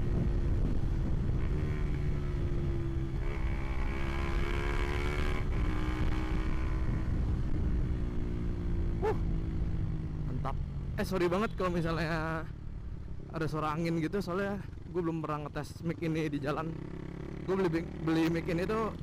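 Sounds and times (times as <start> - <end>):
wind rumble on microphone: 0.0 - 10.0
motorcycle engine while riding: 0.0 - 19.0.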